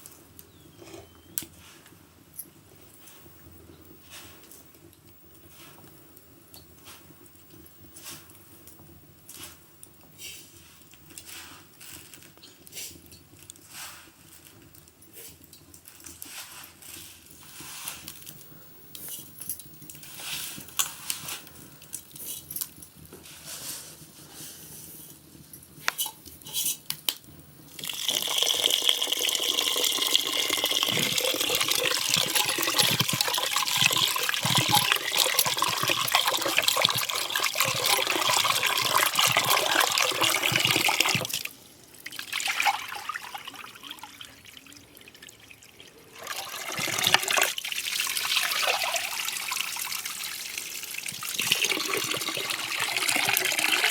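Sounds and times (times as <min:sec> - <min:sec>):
water running into vessel: 0:27.7 - 0:53.9.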